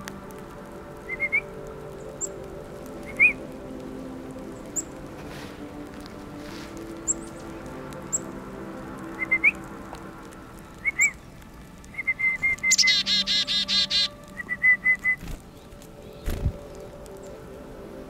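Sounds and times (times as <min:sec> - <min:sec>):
soft music: 0:00.0 - 0:18.0
bird whistled calls: 0:01.1 - 0:01.5, 0:03.0 - 0:03.4, 0:09.2 - 0:09.6, 0:10.8 - 0:11.3, 0:11.9 - 0:16.5
bird harsh rapid notes: 0:12.0 - 0:16.6.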